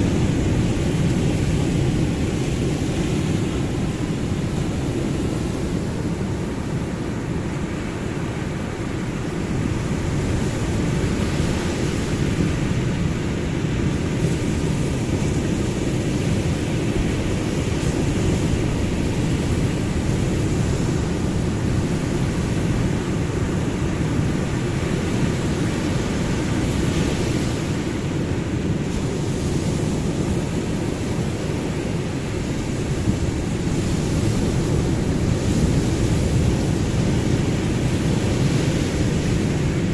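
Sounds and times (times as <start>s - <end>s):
waves breaking: 0.0s - 39.9s.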